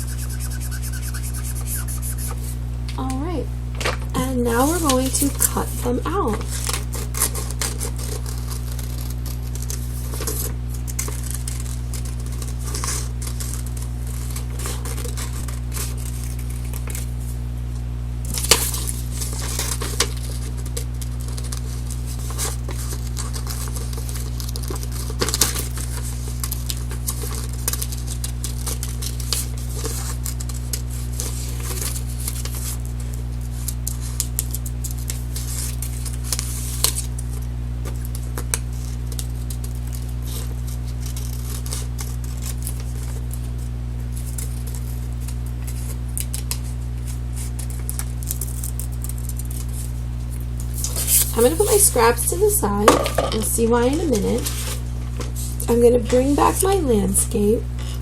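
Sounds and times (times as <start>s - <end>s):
low electrical hum: 0.0s - 58.0s
paper rustling: 3.8s - 17.4s, 18.3s - 56.9s
scissors snipping paper: 4.5s - 17.1s, 50.6s - 52.1s.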